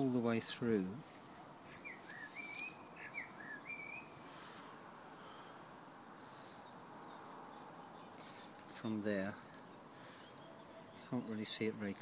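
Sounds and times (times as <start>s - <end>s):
faint outdoor background hiss: 0.0s - 12.0s
songbird whistled notes: 1.8s - 4.1s.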